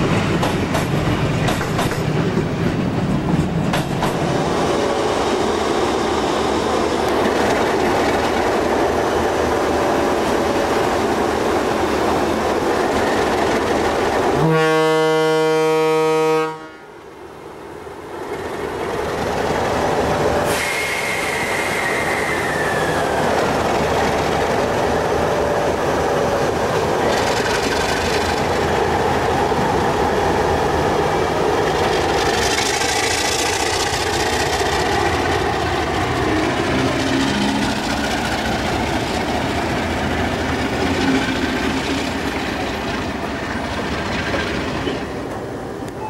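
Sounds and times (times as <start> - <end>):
wheels clicking over rail joints: 0.0 - 4.3, 26.5 - 29.6
train wheels rumbling on rails: 0.0 - 15.8, 17.1 - 46.0.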